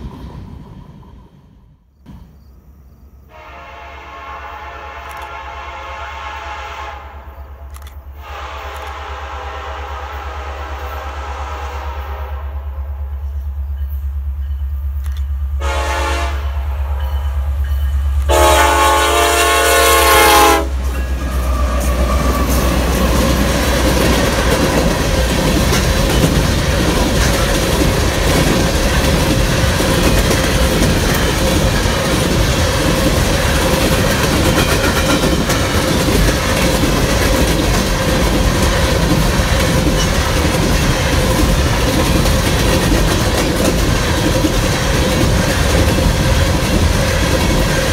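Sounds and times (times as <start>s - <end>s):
locomotive hum: 0.0s - 47.9s
train air horn blasts: 3.3s - 13.1s, 15.6s - 17.1s, 18.3s - 23.1s
freight cars rolling over rails: 20.8s - 47.9s.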